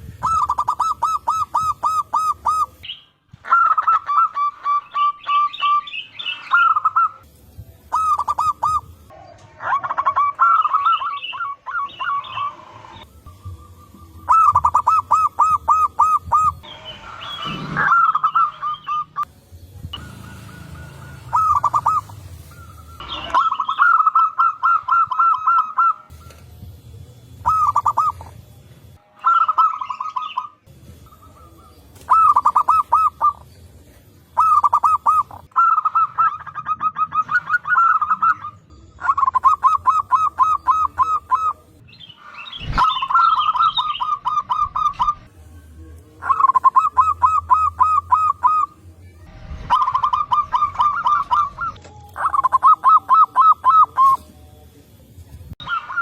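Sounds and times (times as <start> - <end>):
doves cooing: 0.0 - 2.8, 7.9 - 19.3, 19.9 - 26.3, 27.4 - 28.4, 29.2 - 41.8, 46.2 - 48.8, 49.4 - 54.3.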